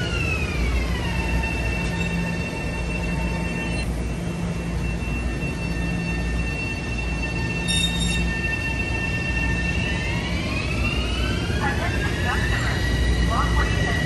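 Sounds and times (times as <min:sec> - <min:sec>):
train rumbling on rails: 0:00.0 - 0:14.0
sharp wheel squeal: 0:07.6 - 0:08.6.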